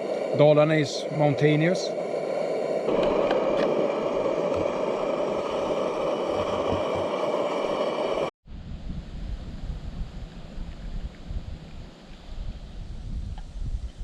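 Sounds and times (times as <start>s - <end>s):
camping stove burner rushing: 0.0s - 8.3s.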